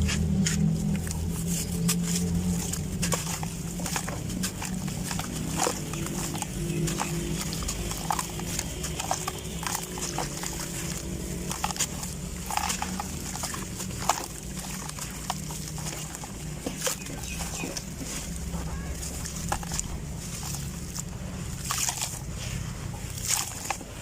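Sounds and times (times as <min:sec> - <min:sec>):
dry clumps crumbling: 0:00.0 - 0:24.0
low hum: 0:00.0 - 0:24.0.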